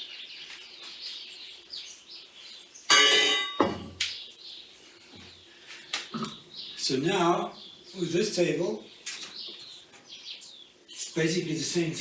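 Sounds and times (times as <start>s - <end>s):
birds chirping: 0.0s - 12.0s
metal table frame clanging: 2.9s - 4.0s.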